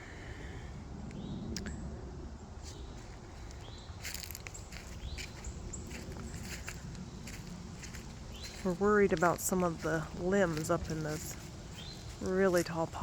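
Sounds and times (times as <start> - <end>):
wind rumble on microphone: 0.0 - 13.0
rustles or footsteps: 2.6 - 13.0.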